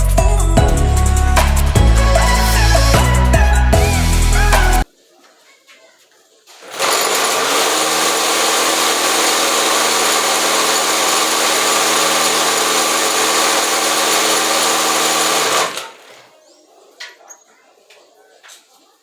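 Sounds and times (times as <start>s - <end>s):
electric fan whirring: 6.6s - 16.4s.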